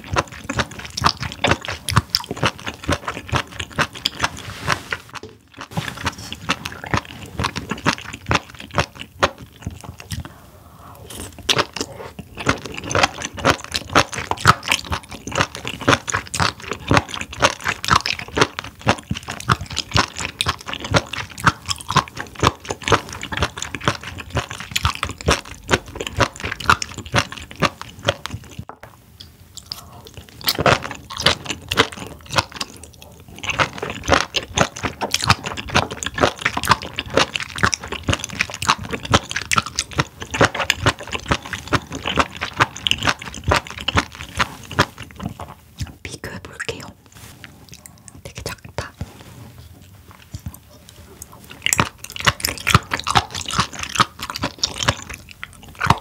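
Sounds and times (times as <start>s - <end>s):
wet chewing clicks: 0.0s - 10.4s, 11.0s - 56.0s.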